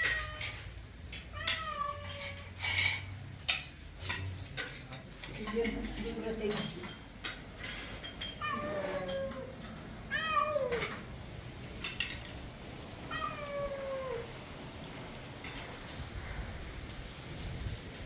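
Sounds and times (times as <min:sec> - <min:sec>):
cat meowing: 0:01.3 - 0:02.4, 0:08.4 - 0:11.1, 0:13.0 - 0:14.6
faint clinks: 0:02.0 - 0:09.8.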